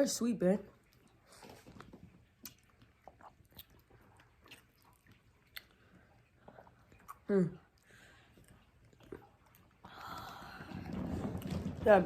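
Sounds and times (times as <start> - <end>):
chewing sounds: 0.6 - 11.6.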